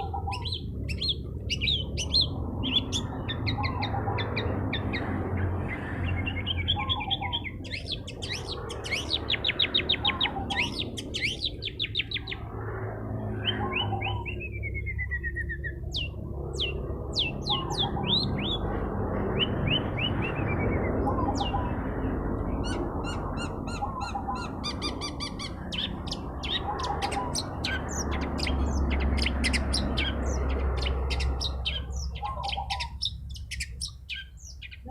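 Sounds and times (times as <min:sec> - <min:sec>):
bird singing trills and whistles: 0:00.0 - 0:05.0, 0:05.7 - 0:12.4, 0:13.4 - 0:18.6, 0:22.6 - 0:34.9.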